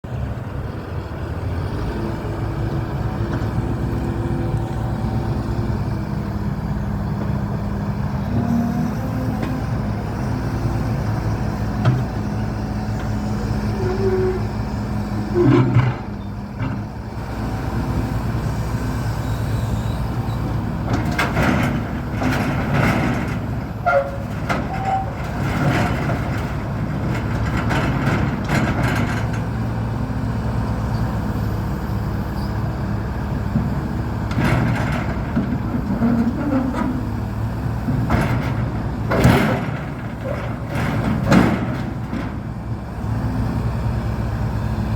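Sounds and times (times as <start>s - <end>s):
excavator diesel engine running: 0.0s - 44.9s
short squeaks: 13.6s - 16.4s, 23.7s - 25.4s
metallic clanks and knocks: 37.8s - 42.5s.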